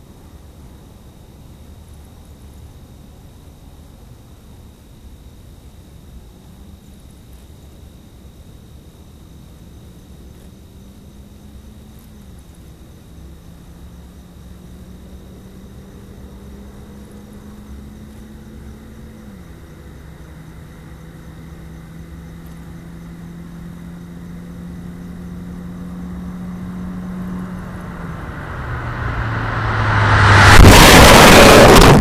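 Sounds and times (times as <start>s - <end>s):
car engine accelerating: 13.2s - 32.0s
car passing by: 13.7s - 19.2s, 22.7s - 32.0s.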